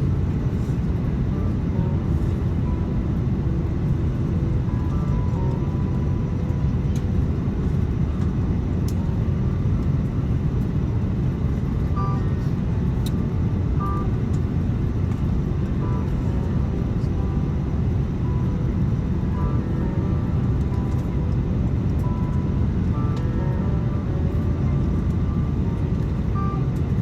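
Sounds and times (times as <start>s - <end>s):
jet engine cabin rumble: 0.0s - 27.0s.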